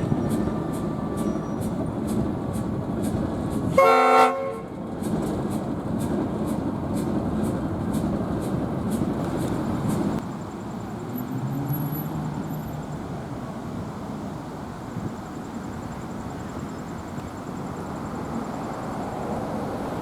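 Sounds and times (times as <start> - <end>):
passing train rumble: 0.0 - 20.0
locomotive air horn blast: 3.6 - 4.8.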